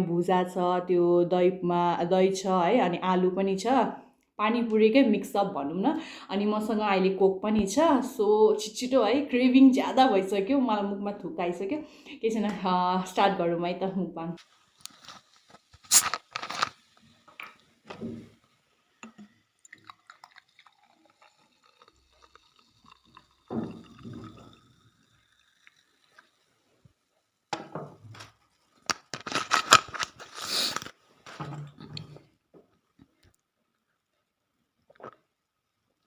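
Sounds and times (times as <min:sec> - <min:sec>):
crackly burst: 0:14.7 - 0:17.0, 0:28.4 - 0:31.0
liquid pouring: 0:14.7 - 0:27.5.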